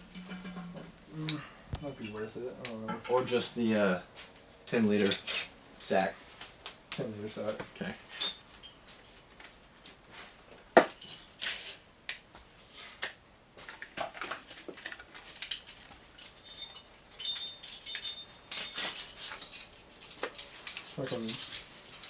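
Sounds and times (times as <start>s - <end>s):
metal hardware clinking: 0.0s - 3.2s, 14.8s - 22.0s.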